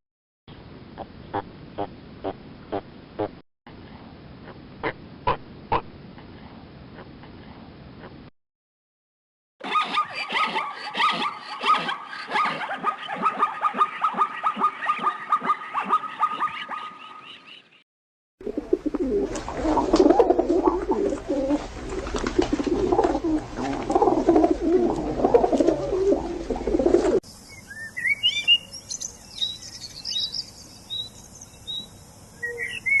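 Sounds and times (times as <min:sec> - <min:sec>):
high rising bird chirps: 0:27.3 - 0:33.0.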